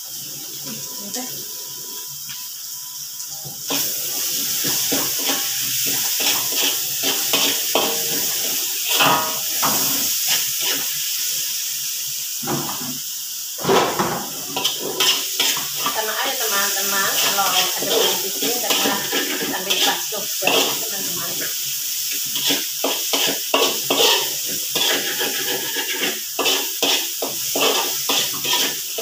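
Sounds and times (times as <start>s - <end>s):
food sizzling in a wok: 0.0s - 29.0s
spatula scraping metal wok: 3.7s - 11.0s, 14.4s - 29.0s.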